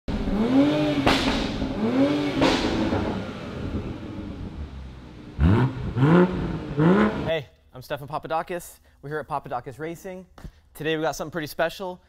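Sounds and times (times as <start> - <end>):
car engine revving: 0.1 - 7.3
exhaust crack: 0.1 - 7.4.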